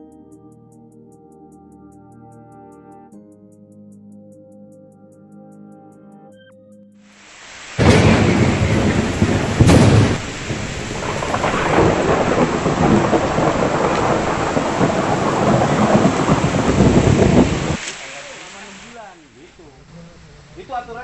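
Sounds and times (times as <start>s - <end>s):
heavy rain: 7.2s - 19.1s
thunder crack: 7.8s - 17.9s.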